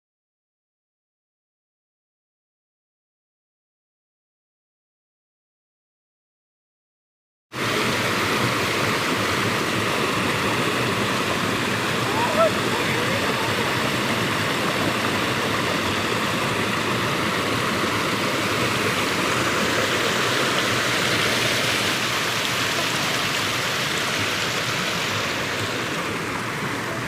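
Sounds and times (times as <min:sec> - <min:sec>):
water rushing: 0:07.6 - 0:27.0.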